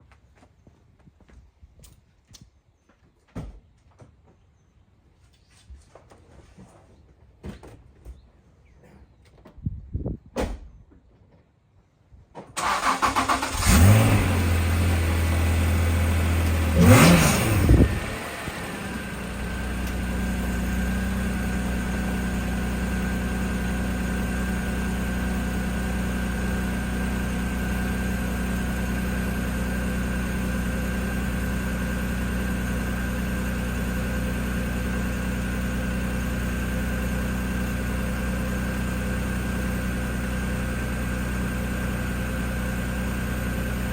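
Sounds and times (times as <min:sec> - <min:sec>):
engine cranking: 0:12.6 - 0:14.4
car engine idling and revving: 0:12.6 - 0:43.9.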